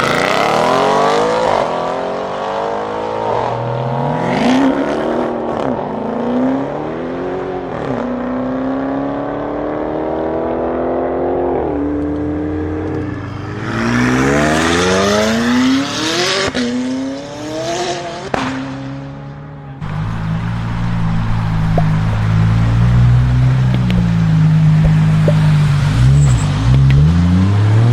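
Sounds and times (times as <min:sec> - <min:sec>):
car engine accelerating through gears: 0:00.0 - 0:18.1, 0:19.8 - 0:27.9
loud rushing hiss: 0:19.8 - 0:25.9
sharp cracks: 0:19.8 - 0:27.9.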